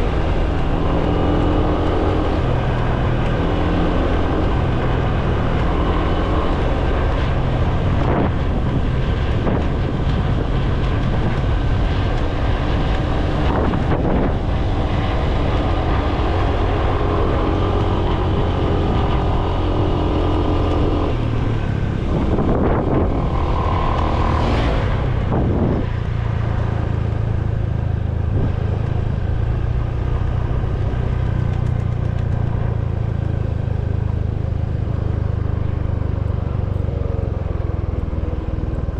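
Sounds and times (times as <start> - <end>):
motorbike engine hum: 0.0 - 38.9
rushing wind noise: 0.0 - 38.9
vehicle passing: 10.4 - 32.8.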